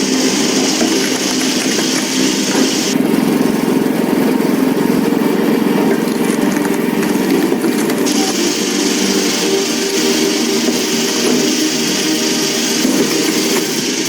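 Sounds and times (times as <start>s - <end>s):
high hiss: 0.0s - 3.0s, 8.0s - 14.0s
log splitter motor running: 0.0s - 14.0s.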